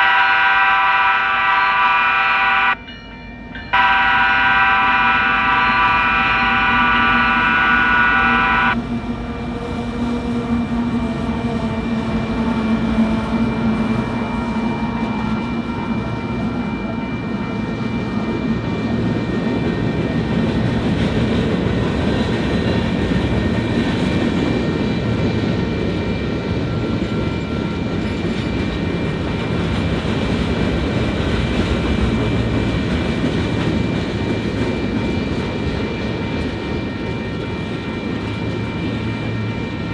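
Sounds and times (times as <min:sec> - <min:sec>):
locomotive horn chord: 0:00.0 - 0:02.9, 0:03.7 - 0:08.8
train rumbling past: 0:00.0 - 0:39.9.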